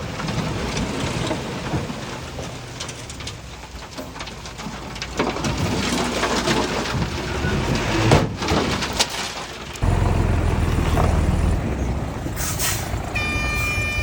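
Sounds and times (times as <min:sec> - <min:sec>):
heavy machinery diesel engine rumble: 0:00.0 - 0:14.0.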